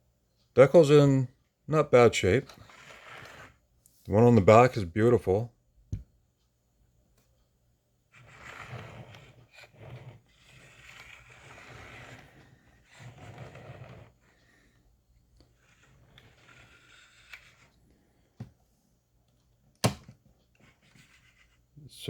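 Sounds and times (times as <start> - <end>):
toy truck scraping and rubbing: 2.0 - 3.6, 8.1 - 14.8, 15.4 - 18.0, 20.6 - 21.7.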